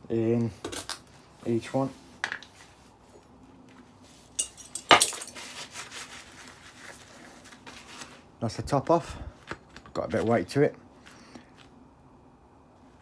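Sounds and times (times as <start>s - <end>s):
metal clinking: 4.4s - 5.5s.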